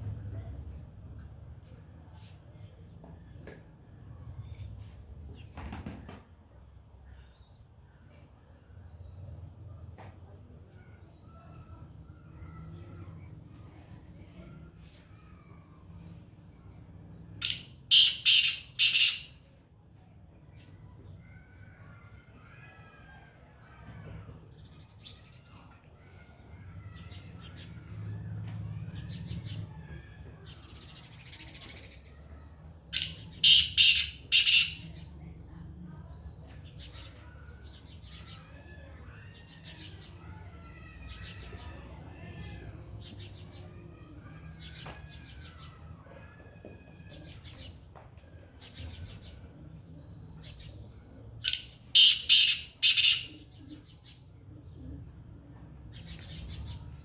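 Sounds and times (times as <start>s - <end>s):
small birds chirping and trilling: 0.0s - 57.0s
francolin calling: 17.4s - 19.3s, 33.0s - 34.9s, 51.4s - 53.5s.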